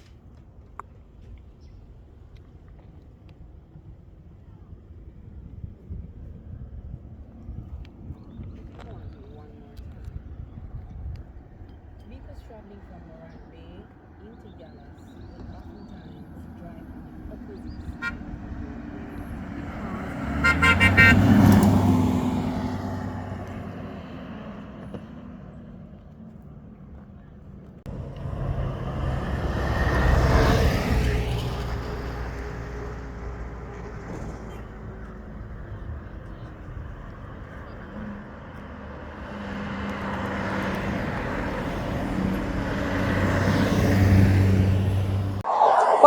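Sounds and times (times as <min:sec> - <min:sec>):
vehicle passing by: 0:15.7 - 0:26.2, 0:27.9 - 0:45.4
car horn toot: 0:18.0 - 0:18.2, 0:20.4 - 0:21.5.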